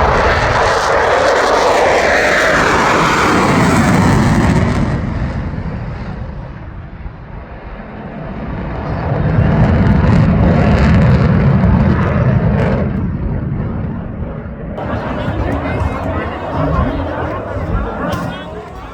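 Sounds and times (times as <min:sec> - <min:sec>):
fighter jet roaring overhead: 0:14.8 - 0:18.9.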